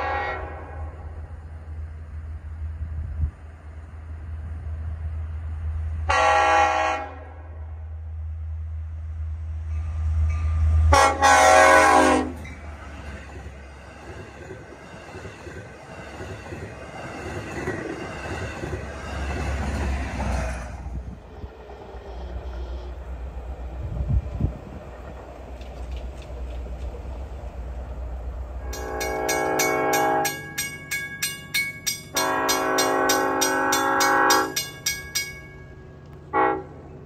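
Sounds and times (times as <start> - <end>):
train horn blasts: 0.0 - 1.3, 6.0 - 7.8, 10.4 - 12.5, 28.6 - 30.6, 32.1 - 34.6, 36.3 - 36.9
locomotive engine drone: 0.0 - 37.0
train coaches clattering on rails: 9.7 - 21.0, 24.1 - 28.0, 28.6 - 36.3.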